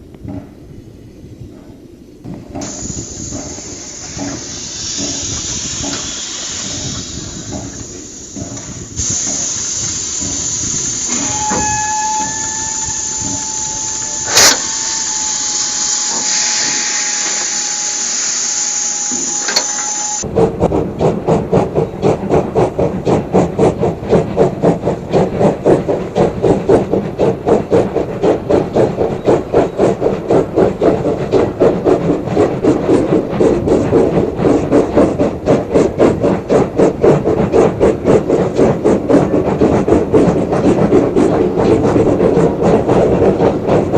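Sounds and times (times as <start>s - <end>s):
steam hissing: 2.3s - 43.9s
locomotive exhaust chuffing: 2.4s - 18.2s
steam whistle blast: 9.1s - 20.2s.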